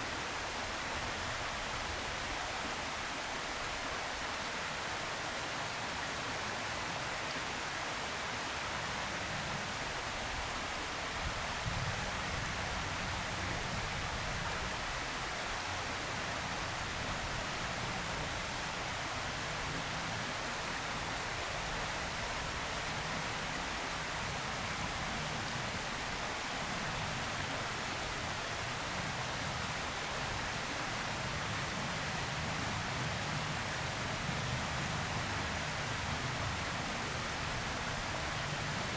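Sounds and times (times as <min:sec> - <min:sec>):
steady background hiss: 0:00.0 - 0:38.9.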